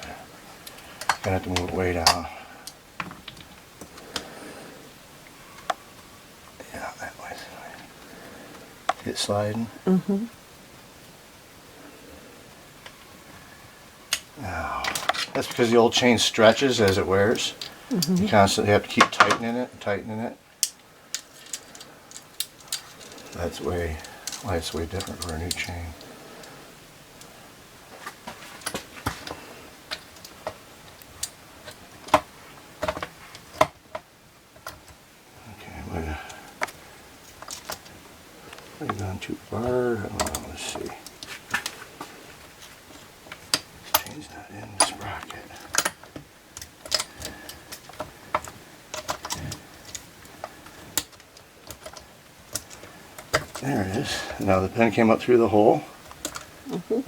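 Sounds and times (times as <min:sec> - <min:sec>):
metallic clicks of chainsaw chain: 0:20.6 - 0:25.7.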